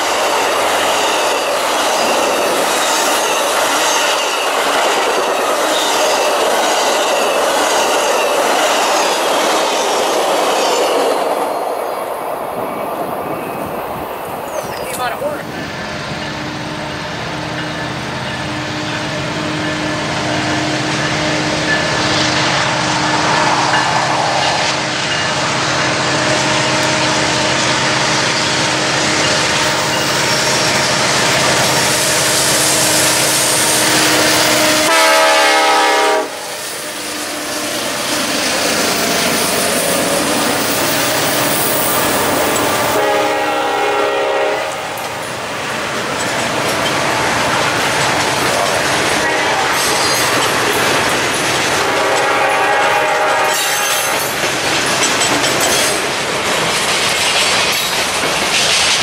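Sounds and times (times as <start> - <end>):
diesel locomotive engines running: 11.2 - 59.0
train horn blast: 32.8 - 38.0, 42.8 - 45.0, 49.2 - 49.8, 51.8 - 54.3.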